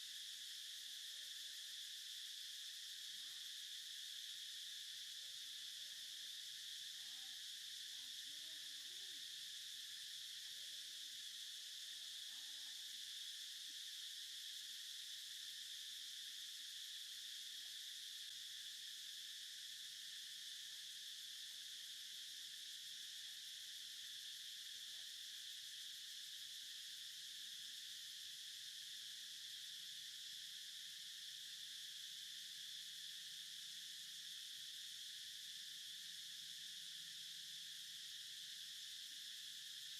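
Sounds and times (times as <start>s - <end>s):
insect chorus droning: 0.0s - 39.9s.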